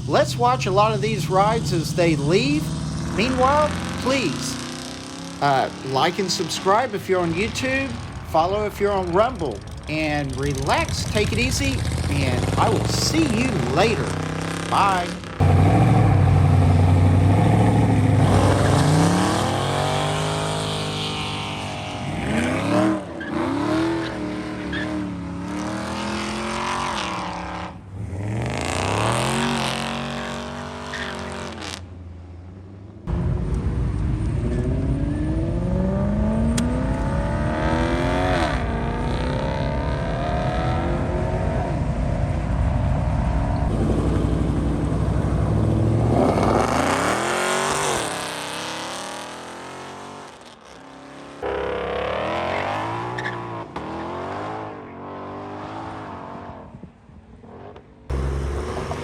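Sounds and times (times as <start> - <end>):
loud low engine rumble: 0.0 - 22.6, 31.9 - 47.8, 58.1 - 59.0
car engines revving: 0.0 - 59.0.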